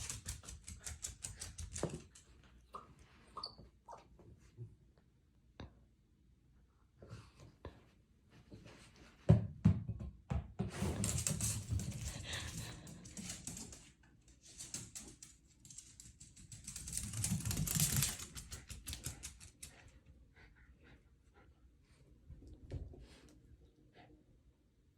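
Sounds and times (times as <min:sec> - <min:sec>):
dog claws clicking and scrabbling: 0:00.0 - 0:02.4, 0:11.1 - 0:19.9.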